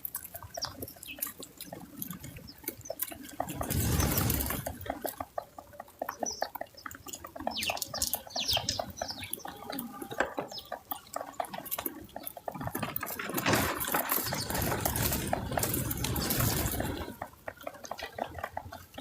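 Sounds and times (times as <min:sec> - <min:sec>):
animals crunching food: 0:00.0 - 0:19.0
high bird chirps: 0:06.2 - 0:09.6.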